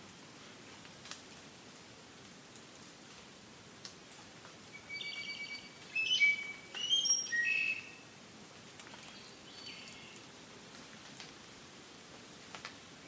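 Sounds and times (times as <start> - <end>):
faint forest hiss: 0.0 - 13.0
songbird singing: 4.7 - 8.1, 9.0 - 10.3.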